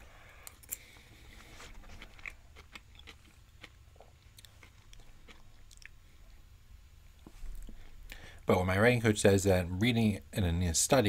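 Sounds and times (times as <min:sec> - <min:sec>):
person chewing: 0:00.3 - 0:06.4.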